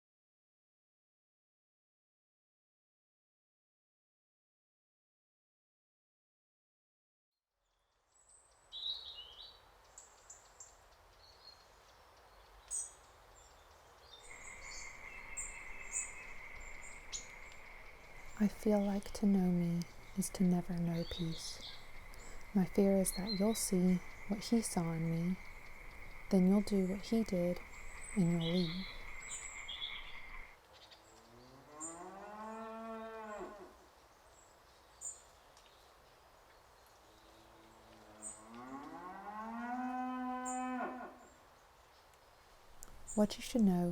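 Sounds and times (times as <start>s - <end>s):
birds chirping: 8.3s - 38.9s, 40.0s - 43.9s
high insect trill: 14.3s - 30.6s
high bird chirps: 14.3s - 30.9s
cow mooing: 31.5s - 33.8s, 37.9s - 41.2s.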